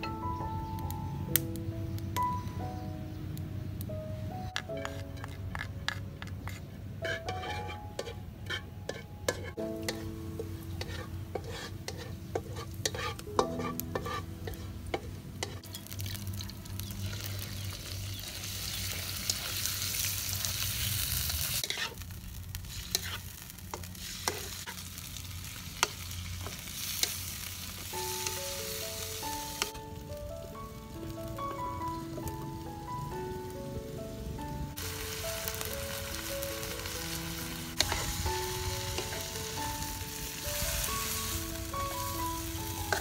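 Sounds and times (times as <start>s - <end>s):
soft plucked background music: 0.0s - 19.5s, 25.8s - 43.0s
spatula scraping metal wok: 4.6s - 15.8s, 21.5s - 22.0s, 22.7s - 24.8s, 37.8s - 39.5s
food sizzling in hot oil: 8.9s - 30.0s, 34.7s - 43.0s.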